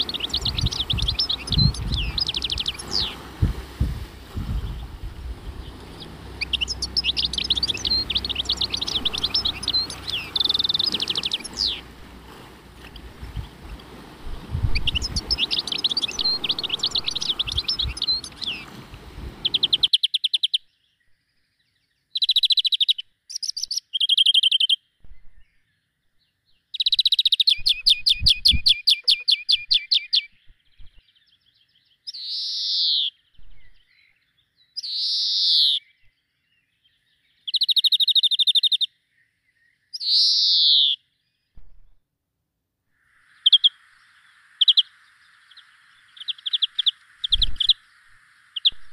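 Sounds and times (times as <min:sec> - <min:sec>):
songbirds chirping and trilling: 0:00.0 - 0:42.0, 0:43.0 - 0:48.9
downward-sliding whistled bird notes: 0:04.4 - 0:12.0, 0:14.5 - 0:18.8.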